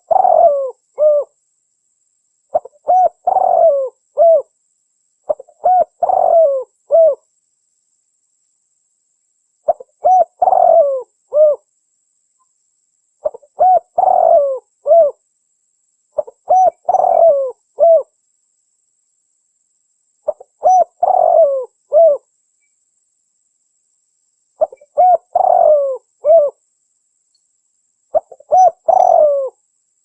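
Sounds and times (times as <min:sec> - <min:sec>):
dove cooing: 0:00.0 - 0:01.3, 0:02.5 - 0:04.5, 0:05.3 - 0:07.2, 0:09.7 - 0:11.7, 0:13.2 - 0:15.2, 0:16.2 - 0:18.1, 0:20.3 - 0:22.3, 0:24.6 - 0:26.6, 0:28.1 - 0:29.6.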